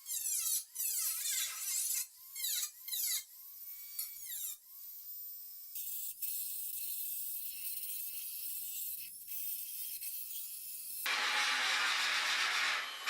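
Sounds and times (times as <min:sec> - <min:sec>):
small power tool whining: 0:00.0 - 0:13.0.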